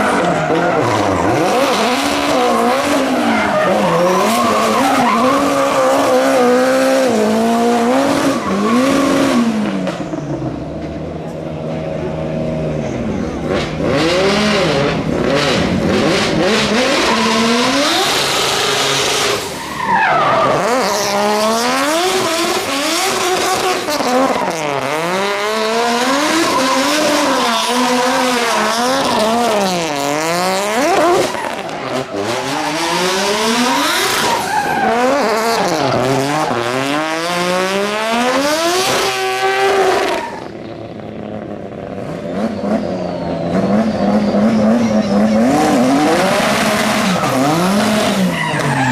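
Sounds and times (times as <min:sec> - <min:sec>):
tyres squealing and skidding: 0:00.0 - 0:11.3, 0:12.8 - 0:48.9
racing car engine revving: 0:00.0 - 0:48.9.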